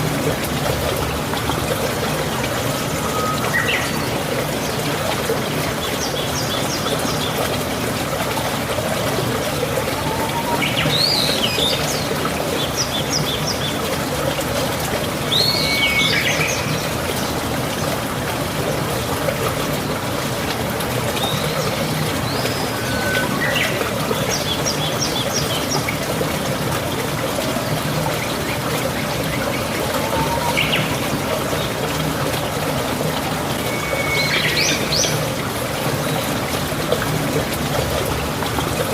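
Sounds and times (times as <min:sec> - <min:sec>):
water trickling: 0:00.0 - 0:38.9
birds chirping: 0:21.2 - 0:25.9.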